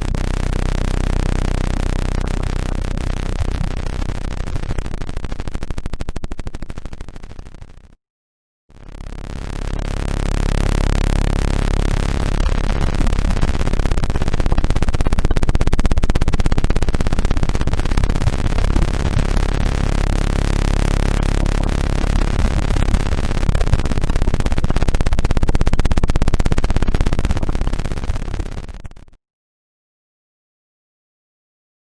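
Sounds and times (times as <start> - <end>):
electronic tones: 0.0 - 4.7.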